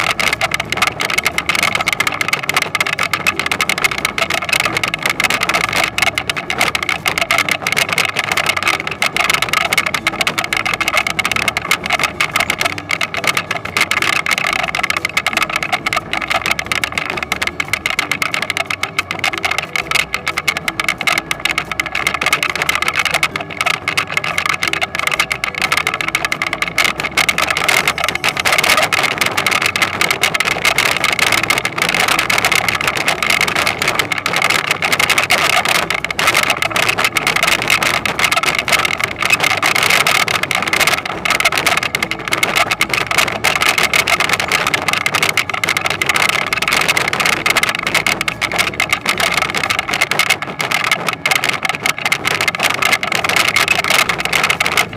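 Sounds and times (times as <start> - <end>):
harvester mechanical clatter: 0.0 - 54.9.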